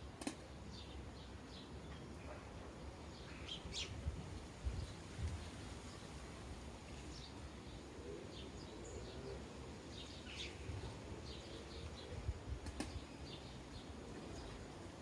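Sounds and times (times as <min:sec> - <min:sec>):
sharp click: 0:00.2 - 0:00.4
sparrows chirping: 0:00.4 - 0:15.0.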